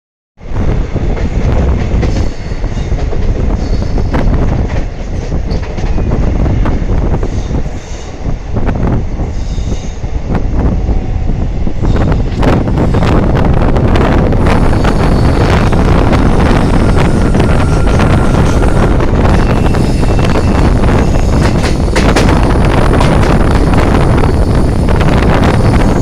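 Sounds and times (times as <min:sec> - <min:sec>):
train rumbling on track: 0:00.4 - 0:26.0
high wheel squeals: 0:14.5 - 0:26.0.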